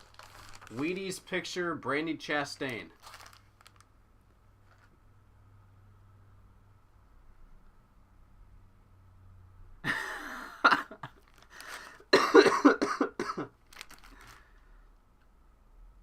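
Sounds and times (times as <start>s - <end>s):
man coughing: 9.9s - 11.1s, 12.1s - 13.5s.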